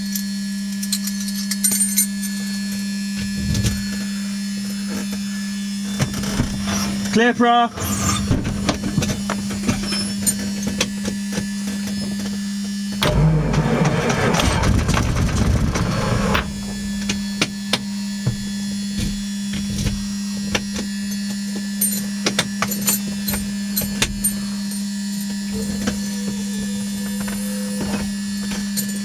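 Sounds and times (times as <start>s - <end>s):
steady electrical hum: 0.0s - 29.0s
aircraft engine cranking and firing: 12.7s - 18.2s.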